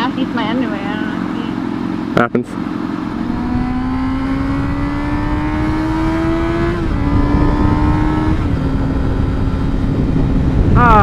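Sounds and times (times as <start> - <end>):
motorcycle engine accelerating: 0.0 - 11.0
wind noise on microphone: 3.1 - 11.0.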